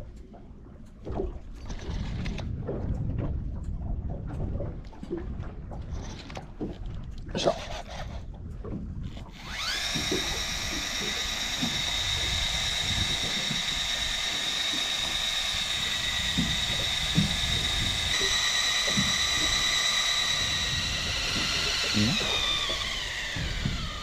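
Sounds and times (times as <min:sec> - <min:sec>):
boat knocking and rumble: 0:00.0 - 0:24.0
fishing reel motor whine: 0:07.4 - 0:08.3, 0:09.0 - 0:24.0.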